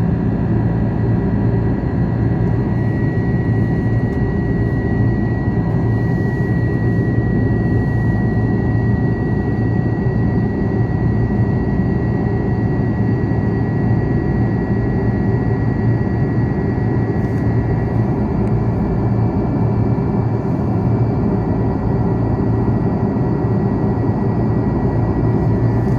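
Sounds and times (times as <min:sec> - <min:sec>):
airliner cabin engine rumble: 0:00.0 - 0:25.9
thin high whine: 0:02.4 - 0:16.4.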